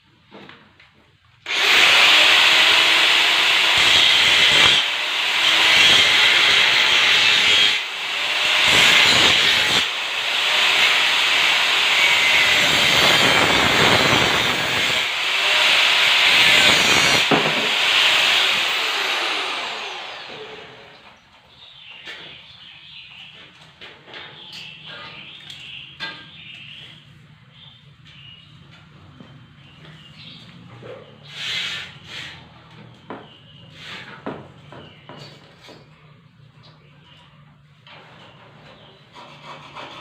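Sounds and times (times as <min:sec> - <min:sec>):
angle grinder cutting steel: 0:01.5 - 0:21.0.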